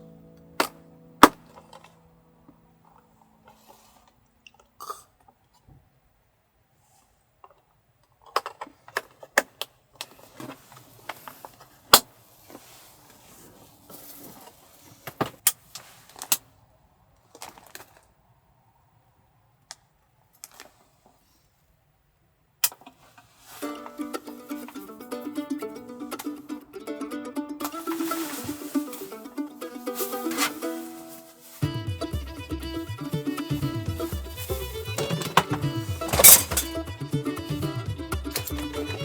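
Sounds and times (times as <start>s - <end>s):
rustling: 10.0s - 18.3s, 22.8s - 26.6s, 27.6s - 37.1s
objects clicking and knocking: 35.0s - 36.8s.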